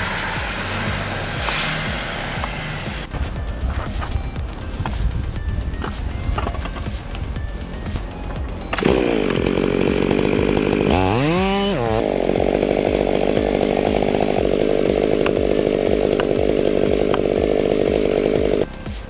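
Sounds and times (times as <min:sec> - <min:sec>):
chainsaw running: 0:00.0 - 0:03.2, 0:04.9 - 0:19.0.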